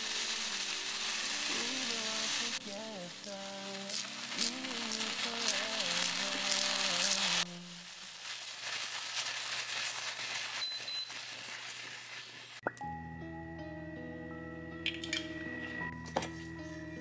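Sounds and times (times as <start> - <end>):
background music: 0.0 - 7.4, 12.7 - 17.0
vegetables sizzling in a pan: 0.0 - 12.6.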